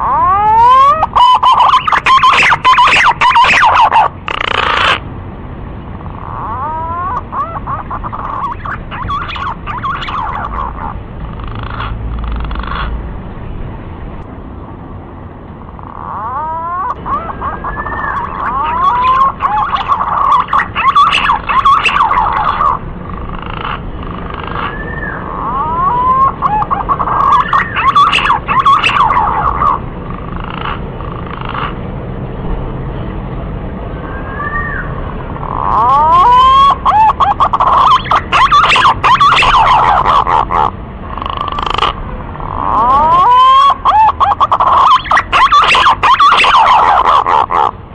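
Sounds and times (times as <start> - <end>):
pigeon whistled warbling song: 0.0 - 5.0, 6.2 - 11.0, 15.9 - 29.8, 34.0 - 47.7.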